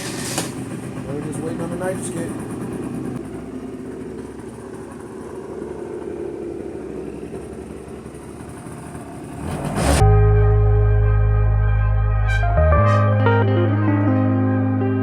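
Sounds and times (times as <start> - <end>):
scooter engine idling: 0.0 - 9.4
music: 10.0 - 15.0.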